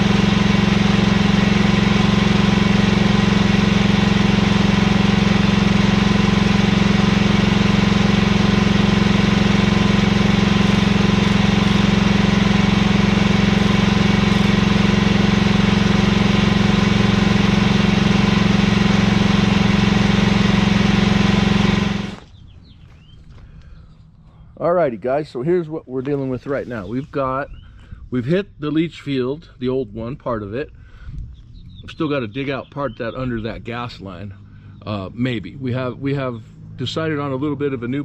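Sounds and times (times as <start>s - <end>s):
excavator engine drone: 0.0s - 22.4s.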